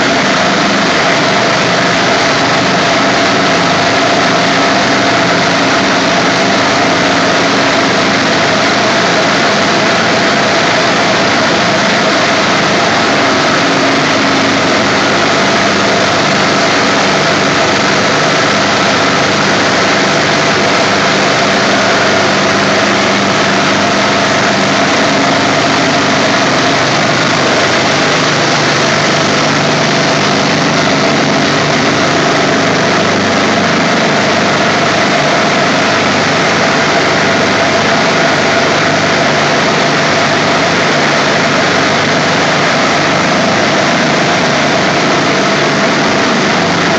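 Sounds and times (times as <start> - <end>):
compressor machinery roar: 0.0 - 46.9.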